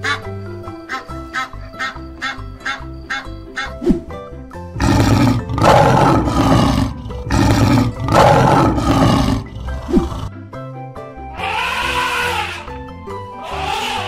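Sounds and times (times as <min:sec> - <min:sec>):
light background music: 0:00.0 - 0:14.0
lion roaring: 0:04.8 - 0:10.3.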